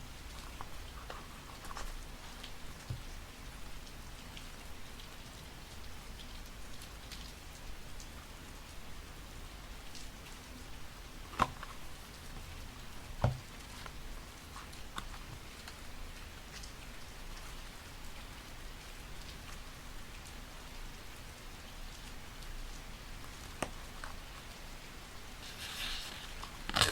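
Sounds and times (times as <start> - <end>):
steady rain: 0.0 - 26.9.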